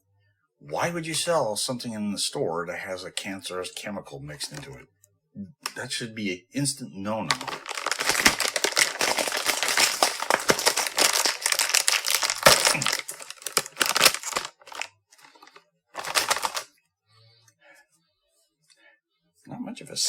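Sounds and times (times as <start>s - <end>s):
plastic snack bag crinkling: 7.2s - 16.7s.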